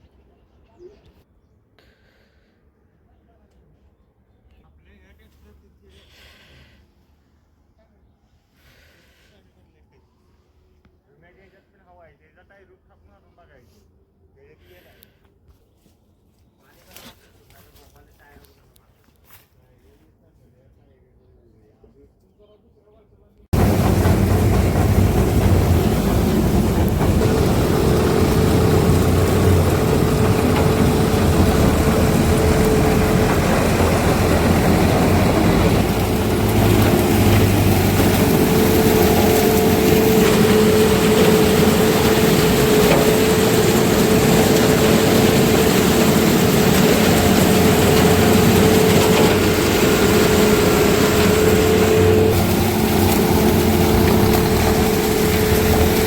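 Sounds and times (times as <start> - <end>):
diesel farm machinery running: 23.6 - 56.0
machinery whine: 23.6 - 56.0.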